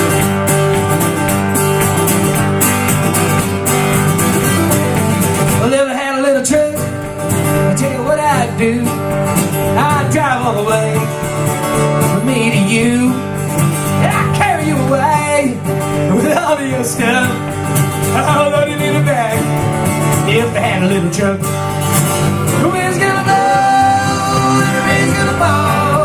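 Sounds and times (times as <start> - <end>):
acoustic guitar strumming: 0.0 - 26.0
wavering lead melody: 0.2 - 5.6.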